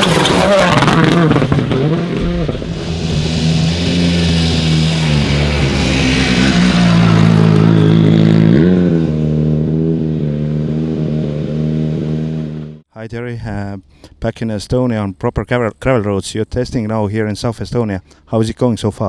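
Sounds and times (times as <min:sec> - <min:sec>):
rally car engine running hard: 0:00.0 - 0:12.8
rushing hiss: 0:00.6 - 0:07.9.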